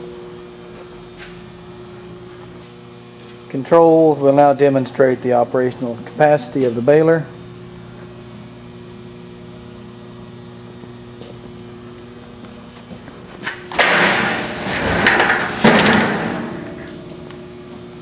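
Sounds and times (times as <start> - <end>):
baler rushing and grinding: 13.8 - 16.7.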